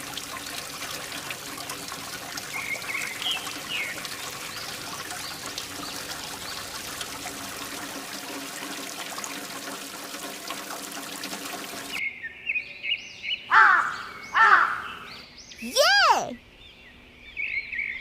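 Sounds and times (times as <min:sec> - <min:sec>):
water pouring and trickling: 0:00.0 - 0:12.0.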